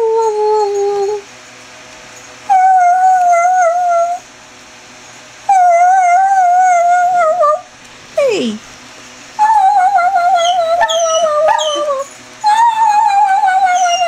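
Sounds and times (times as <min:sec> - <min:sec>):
dog howling: 0:02.5 - 0:04.3, 0:05.5 - 0:07.7, 0:09.4 - 0:14.0.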